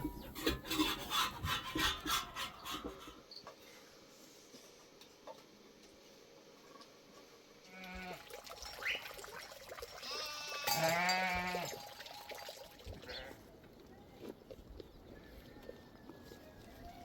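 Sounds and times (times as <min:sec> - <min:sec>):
sheep or goat bleating: 0:07.7 - 0:08.2, 0:10.0 - 0:11.8.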